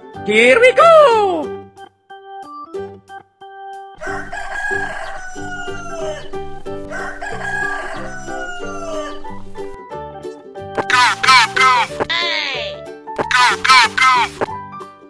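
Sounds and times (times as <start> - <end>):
backing tune: 4.0 - 9.8
rooster crowing: 4.0 - 9.8.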